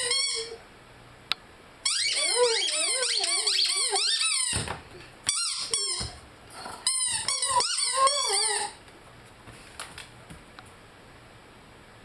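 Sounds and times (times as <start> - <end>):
dog whining howls: 0.0 - 0.6, 1.9 - 4.7, 5.4 - 8.8.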